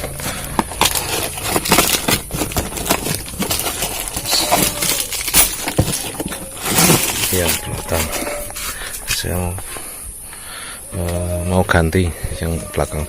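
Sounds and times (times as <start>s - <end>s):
packaging rustling: 0.0s - 9.4s
shock absorbers being handled: 0.0s - 9.8s.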